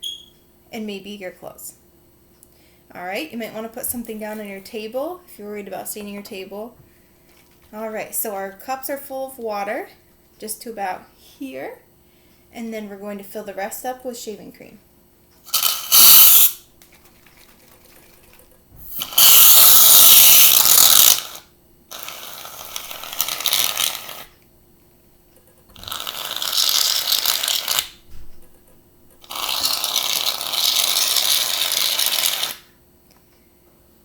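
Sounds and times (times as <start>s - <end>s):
aerosol can hissing: 15.5s - 16.6s, 18.9s - 24.3s, 29.2s - 32.6s.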